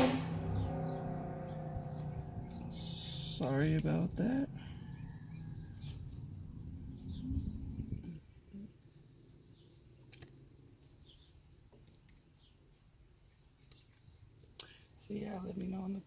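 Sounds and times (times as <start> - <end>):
low rumble: 0.0 - 8.4
birds chirping: 0.0 - 16.0.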